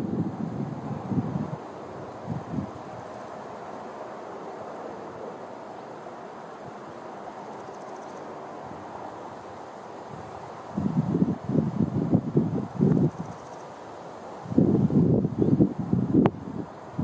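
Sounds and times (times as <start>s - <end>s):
wind buffeting microphone: 0.0s - 3.1s, 10.1s - 13.5s, 14.4s - 17.0s
insects trilling: 0.0s - 17.0s.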